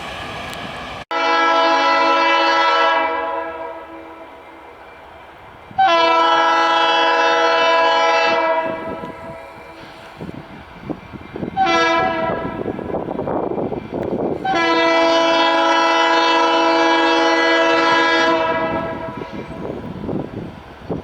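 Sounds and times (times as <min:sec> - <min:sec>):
rumble of passing train: 0:00.0 - 0:21.0
locomotive air horn chord: 0:01.1 - 0:04.7, 0:05.8 - 0:10.1, 0:11.6 - 0:12.7, 0:14.4 - 0:19.4.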